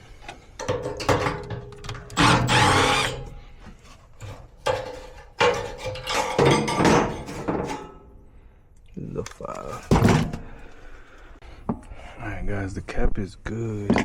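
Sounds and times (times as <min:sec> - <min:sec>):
tools clattering and scraping: 0:00.1 - 0:08.1.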